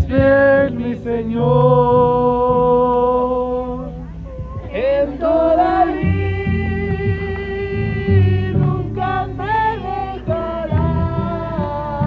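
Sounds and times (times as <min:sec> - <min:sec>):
person singing worship song: 0:00.0 - 0:12.0.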